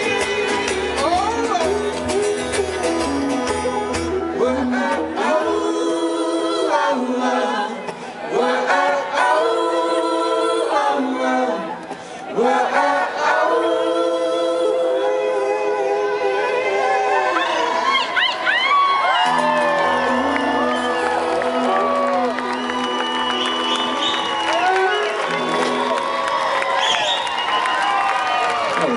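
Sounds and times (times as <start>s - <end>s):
low bass: 0.0s - 5.2s
voices singing in harmony: 0.0s - 25.9s.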